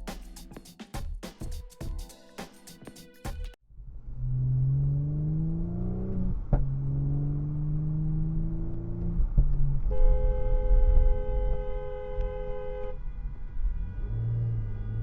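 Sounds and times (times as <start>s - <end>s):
vehicle engine accelerating: 4.1s - 9.4s, 13.3s - 15.0s
two-tone car horn: 9.9s - 13.0s.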